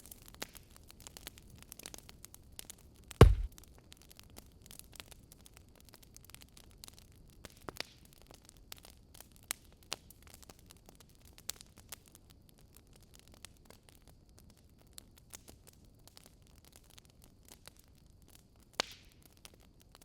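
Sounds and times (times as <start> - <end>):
wood fire crackling: 3.2 - 3.5.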